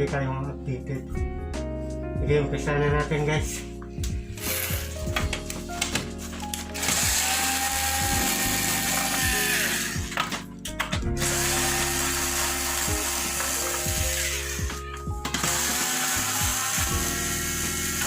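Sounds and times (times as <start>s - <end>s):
power screwdriver whine: 4.4s - 5.0s, 6.6s - 10.4s, 11.1s - 18.0s.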